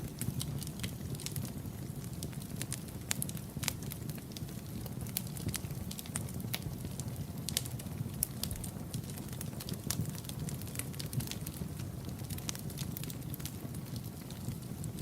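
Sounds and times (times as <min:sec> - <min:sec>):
low rumble of flames: 0:00.0 - 0:15.0
wood popping and crackling: 0:00.2 - 0:15.0.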